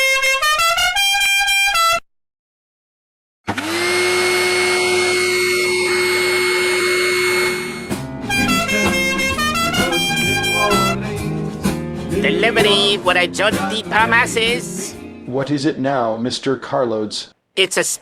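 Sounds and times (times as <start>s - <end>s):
horn blast: 3.6s - 11.5s, 12.1s - 14.9s
tune of short notes: 4.6s - 11.3s.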